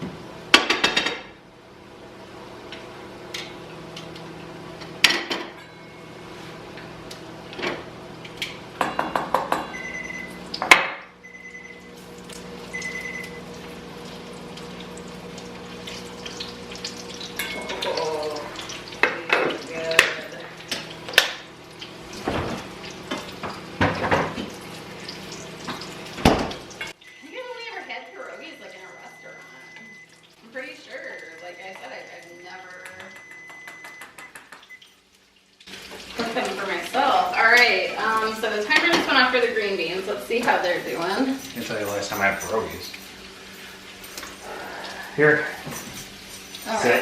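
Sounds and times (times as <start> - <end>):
pans and utensils clattering: 0.6 - 1.4, 5.0 - 5.9, 15.9 - 21.5, 22.1 - 26.9, 35.7 - 39.6, 40.4 - 47.0
short high appliance beeps: 9.7 - 10.5, 11.2 - 13.6, 28.5 - 30.2, 31.2 - 34.9.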